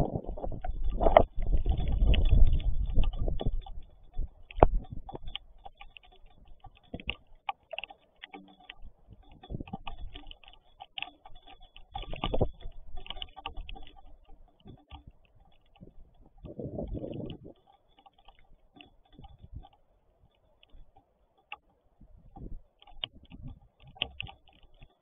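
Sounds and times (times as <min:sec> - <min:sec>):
raindrops tapping on hard surface: 0:00.0 - 0:19.8.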